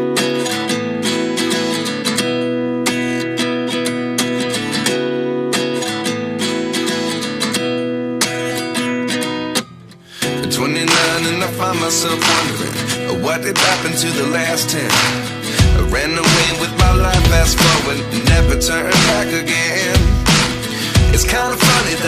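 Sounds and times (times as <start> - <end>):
acoustic guitar strumming chords: 0.0 - 22.0.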